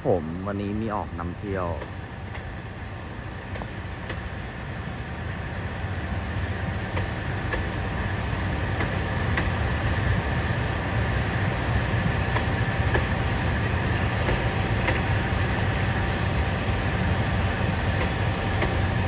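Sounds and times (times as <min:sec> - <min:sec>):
sharp train wheel clicks: 0:06.9 - 0:07.8, 0:08.7 - 0:09.6, 0:12.3 - 0:13.2, 0:14.2 - 0:15.1, 0:18.0 - 0:18.9.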